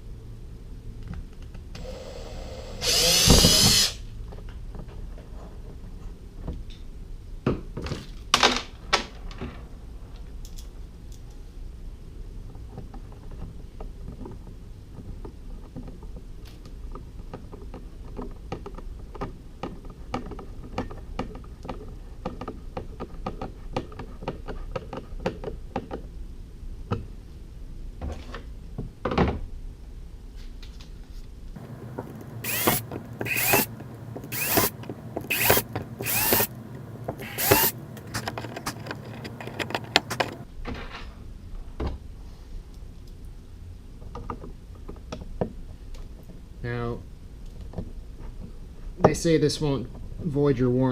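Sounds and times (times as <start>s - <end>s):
ratchet wrench clicking: 32.4s - 33.7s, 34.3s - 34.7s, 35.3s - 36.5s, 37.2s - 37.8s
short rasping strokes: 32.4s - 33.7s, 34.3s - 34.7s, 35.3s - 36.5s, 37.2s - 37.8s.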